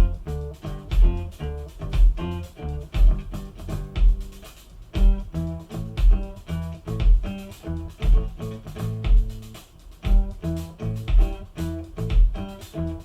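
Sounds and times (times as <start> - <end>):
guitar-led music through speakers: 0.0 - 13.0.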